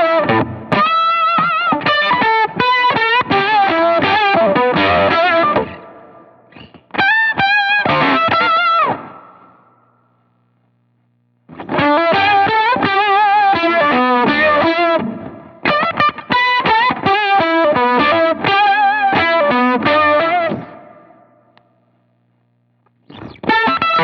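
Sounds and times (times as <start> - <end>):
distorted electric guitar lead: 0.0 - 10.0, 11.5 - 21.4, 23.0 - 24.0.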